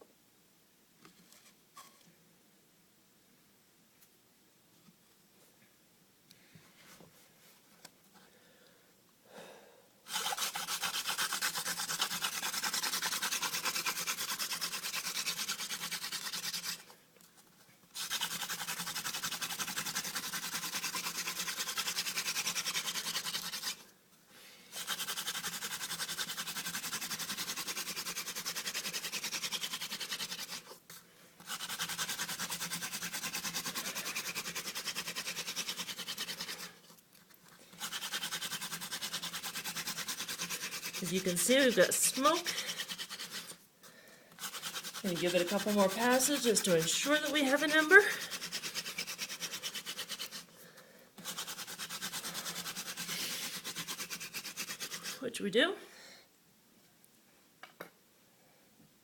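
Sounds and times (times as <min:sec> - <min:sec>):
wooden hand drill rubbing: 0:10.1 - 0:23.8, 0:24.7 - 0:43.6, 0:44.3 - 0:50.5, 0:51.2 - 0:55.2.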